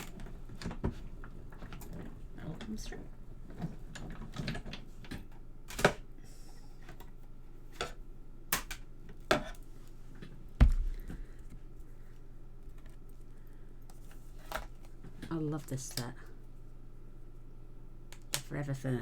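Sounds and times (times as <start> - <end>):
loud thump: 10.6 - 11.3.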